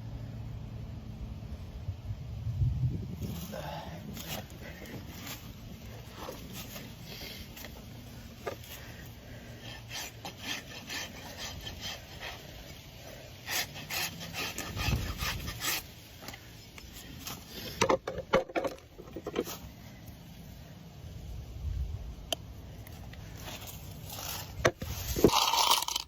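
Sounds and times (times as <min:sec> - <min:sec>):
rasp filing a hoof: 0:04.2 - 0:16.4.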